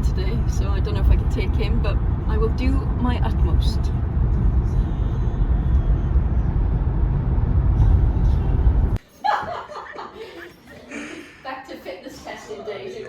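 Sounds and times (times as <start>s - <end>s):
car interior road and engine rumble: 0.0s - 9.0s.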